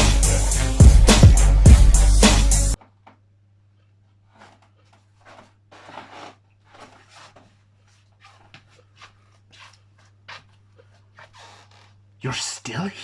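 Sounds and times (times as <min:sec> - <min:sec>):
rustling handling noises: 0:02.8 - 0:12.0.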